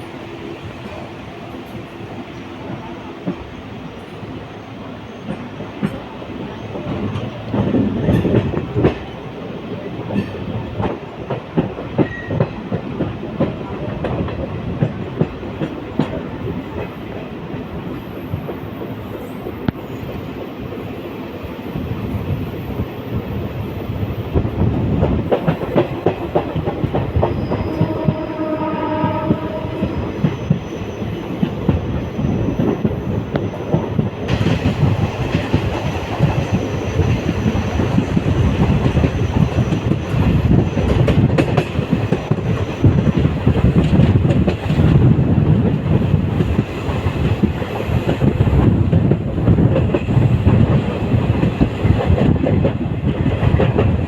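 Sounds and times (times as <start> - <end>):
train wheels clattering over rail joints: 6.8 - 9.2, 24.3 - 54.0.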